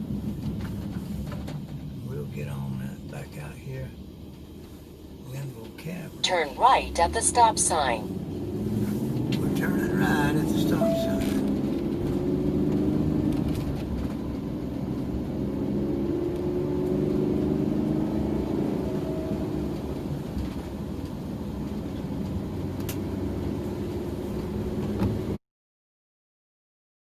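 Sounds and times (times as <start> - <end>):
car engine: 0.0 - 25.4
road rumble: 0.0 - 25.4.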